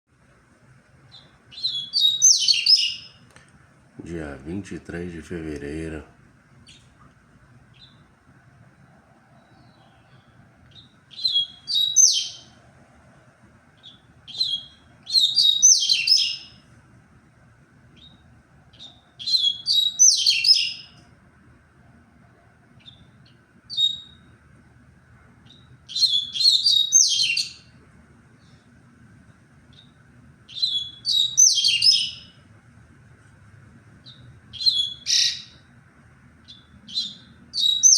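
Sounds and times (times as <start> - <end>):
bird song rapid high notes: 1.1 - 3.2, 13.8 - 16.6, 29.7 - 32.4.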